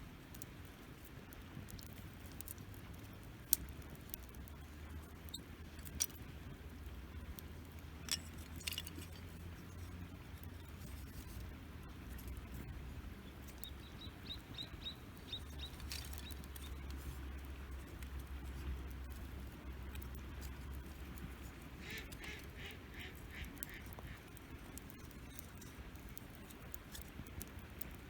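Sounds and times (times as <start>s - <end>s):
campfire crackling: 0.0s - 28.0s
low steady rumble: 0.0s - 28.0s
bird chirping: 13.1s - 17.0s.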